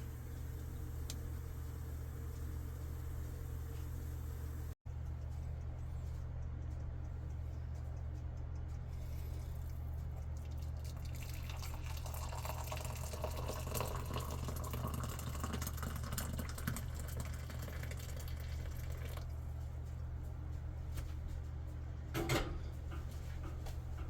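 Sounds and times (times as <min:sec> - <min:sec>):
water running: 0:00.0 - 0:04.8, 0:10.3 - 0:19.4
steady low hum: 0:00.0 - 0:24.0.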